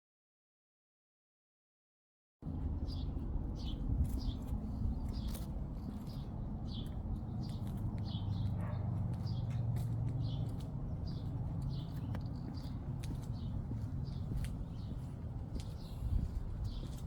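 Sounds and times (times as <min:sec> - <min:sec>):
steady low rumble: 0:02.4 - 0:08.7
small bird chirping: 0:02.8 - 0:17.0.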